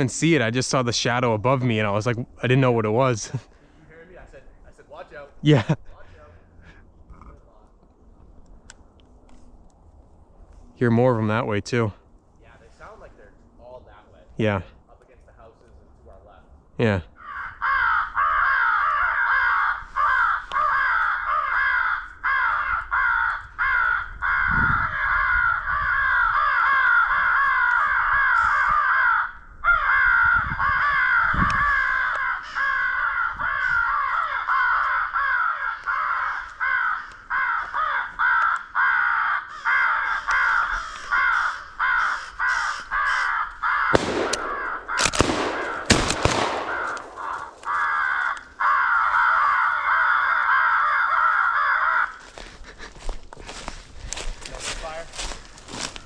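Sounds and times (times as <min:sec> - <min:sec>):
crows cawing: 0:17.1 - 0:56.0.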